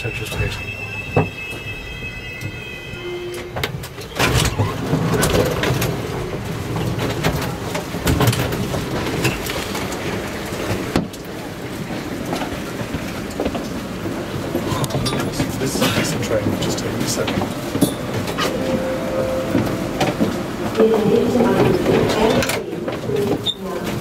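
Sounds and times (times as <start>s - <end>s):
train brake squeal: 0.0s - 4.7s
passengers bustling with knocks: 0.0s - 24.0s.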